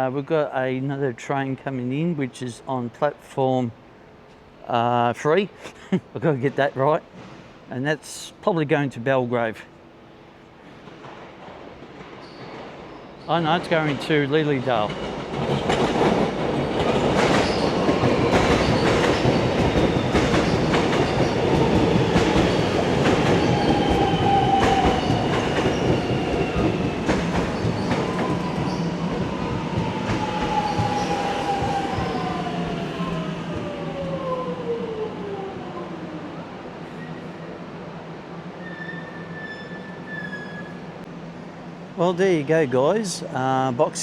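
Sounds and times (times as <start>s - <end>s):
train wheels clacking: 10.7s - 33.7s
train whine falling in pitch: 18.3s - 35.9s.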